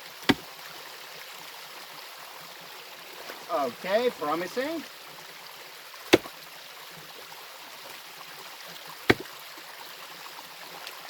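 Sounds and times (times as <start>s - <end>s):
running stream water: 0.0s - 11.0s
pickaxe striking rock: 0.3s - 0.5s, 6.1s - 6.3s, 9.1s - 9.3s.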